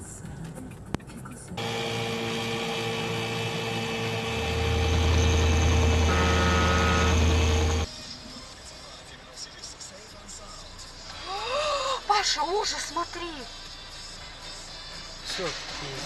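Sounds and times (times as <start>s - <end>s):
vehicle engine humming: 1.6s - 7.9s.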